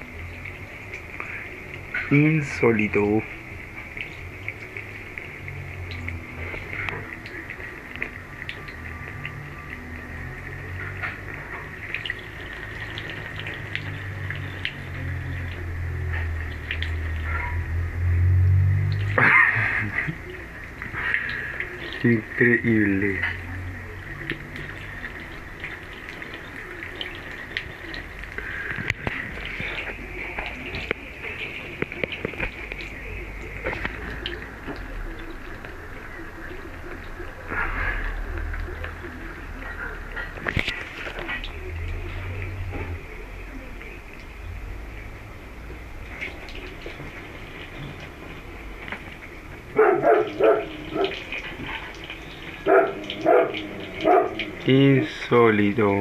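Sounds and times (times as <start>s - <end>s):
small water splashes: 0.0s - 56.0s
water running from tap: 0.0s - 56.0s
dog barking: 49.8s - 51.2s, 52.6s - 54.5s.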